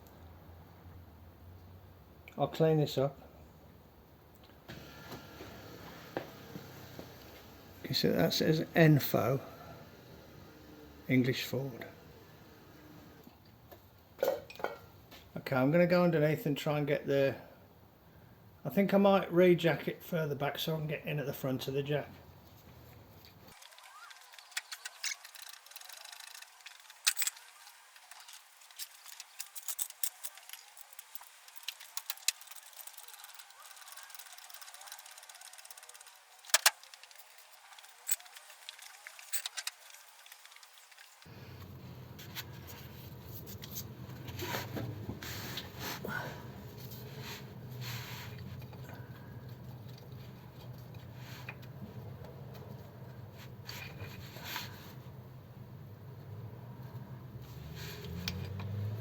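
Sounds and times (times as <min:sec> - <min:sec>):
sharp clicks and light knocks: 0:23.2 - 0:41.2.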